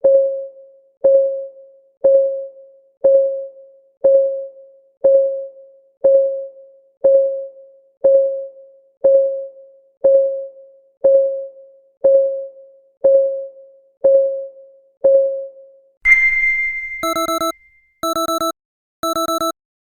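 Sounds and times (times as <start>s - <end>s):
bright chime: 16.1s - 17.8s
countdown timer ticking: 16.1s - 19.6s
rapid electronic alarm beeps: 16.1s - 19.6s.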